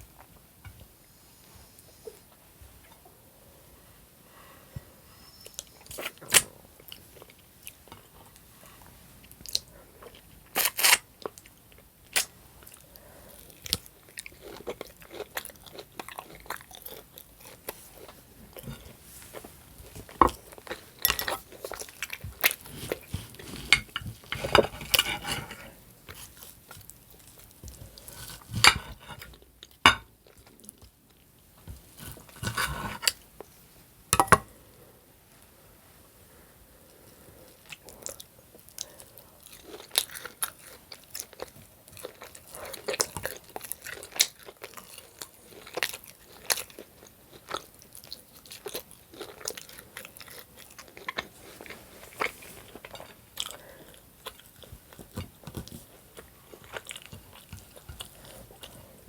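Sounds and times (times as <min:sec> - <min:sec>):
person chewing steak: 0:09.2 - 0:31.2, 0:31.9 - 0:33.2, 0:37.5 - 0:59.0.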